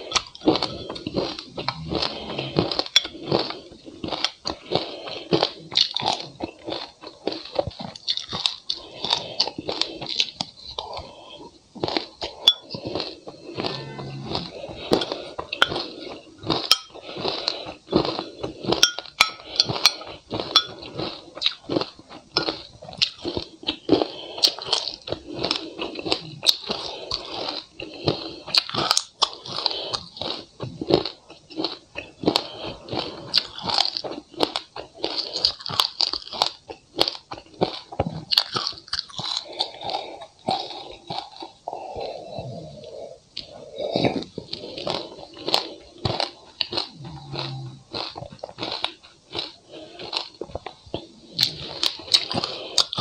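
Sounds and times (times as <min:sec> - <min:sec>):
crunching and chewing seeds: 0:00.0 - 0:53.0.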